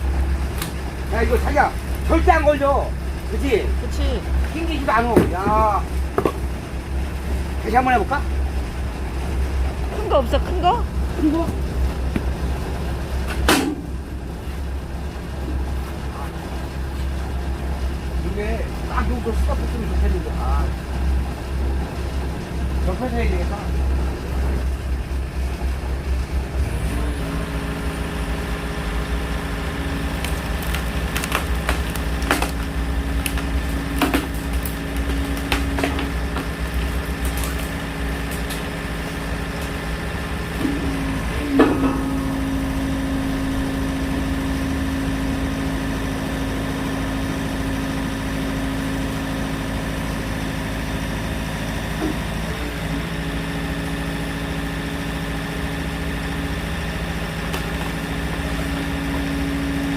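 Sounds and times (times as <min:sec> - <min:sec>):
firewood cracking: 0:00.0 - 0:19.7, 0:26.8 - 0:44.4, 0:53.7 - 0:59.9
engine humming under hydraulic load: 0:00.0 - 0:59.9.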